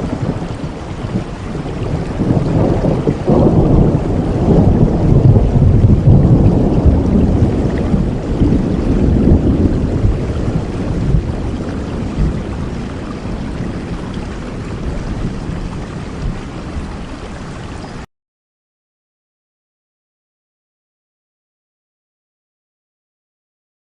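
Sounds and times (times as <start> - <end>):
thunder rumble: 0.0 - 17.5
heavy rain falling: 0.0 - 18.1.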